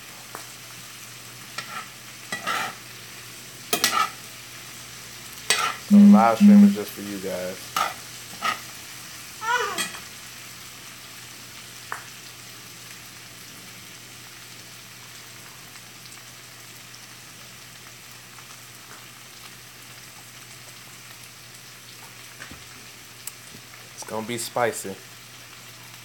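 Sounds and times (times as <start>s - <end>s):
vegetables sizzling in a skillet: 0.0s - 26.0s
brief vocal sound: 5.9s - 6.9s.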